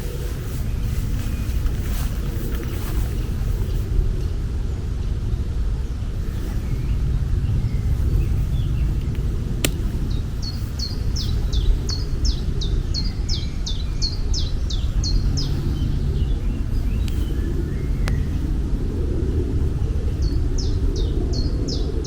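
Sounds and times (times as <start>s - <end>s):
low outdoor rumble: 0.0s - 22.0s
sharp click: 9.0s - 9.9s.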